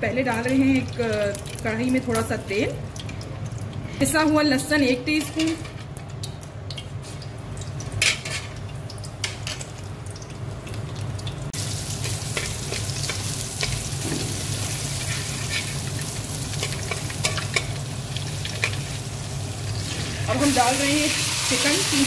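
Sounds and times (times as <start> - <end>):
garlic sizzling in hot oil: 7.0 - 22.0.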